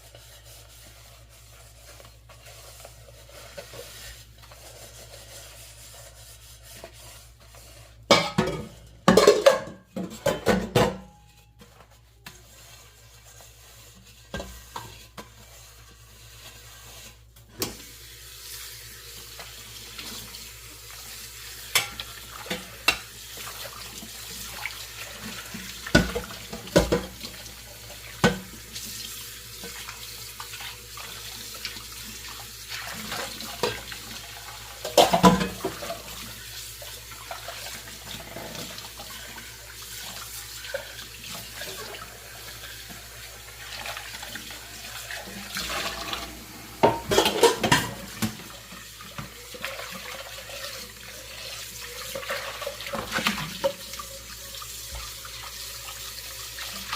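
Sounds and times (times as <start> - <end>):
dishes and pans clinking: 8.1 - 11.4, 21.7 - 23.1, 25.8 - 27.2, 34.8 - 36.1, 45.6 - 48.6.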